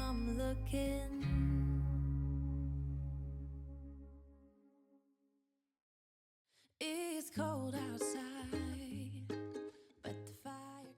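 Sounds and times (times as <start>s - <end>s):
song with singing and bass: 0.0s - 3.9s, 7.4s - 10.9s.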